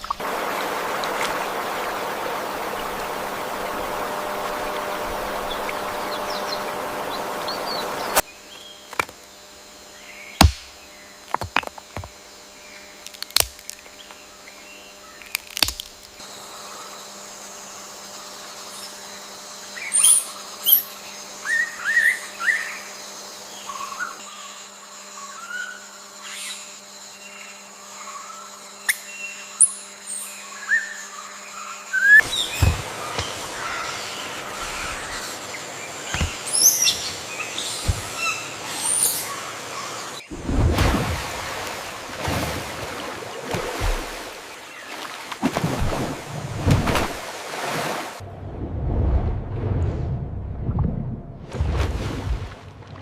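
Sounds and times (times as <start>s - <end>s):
rushing water: 0.0s - 8.2s, 32.2s - 38.7s, 40.4s - 48.3s
faint steady hum: 0.0s - 53.0s.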